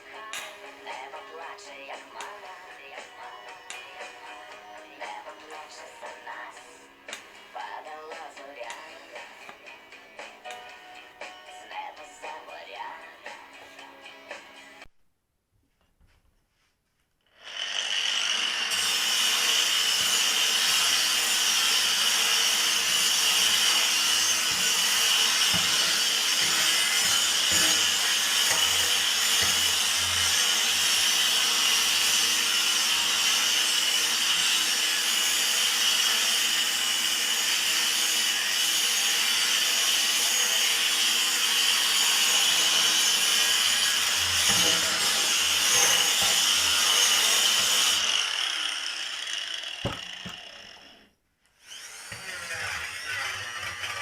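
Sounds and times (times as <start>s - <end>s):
power tool whining on steel: 17.3s - 54.0s.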